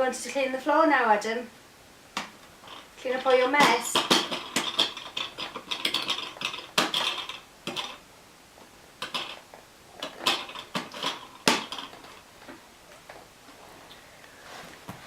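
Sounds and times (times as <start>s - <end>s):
hard objects clattering: 2.2s - 8.0s, 9.0s - 15.0s.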